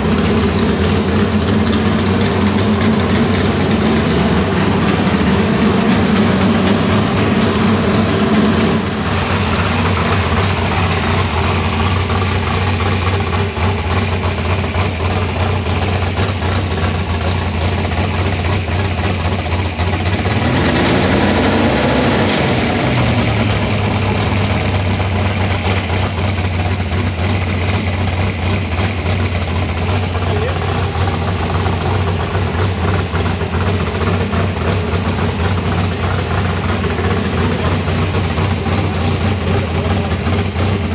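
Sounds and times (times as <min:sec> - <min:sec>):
car engine idling loudly: 0:00.0 - 0:40.9.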